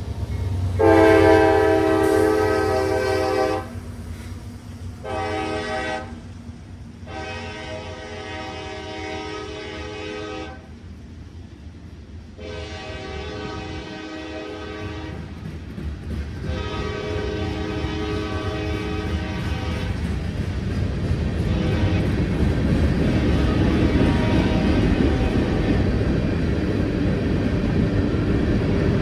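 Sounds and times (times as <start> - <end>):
engine and rail rumble: 0.0 - 29.0
locomotive air horn blasts: 0.8 - 3.8, 5.0 - 6.2, 7.0 - 10.7, 12.4 - 15.3, 16.5 - 20.0, 21.4 - 22.2, 23.1 - 25.6.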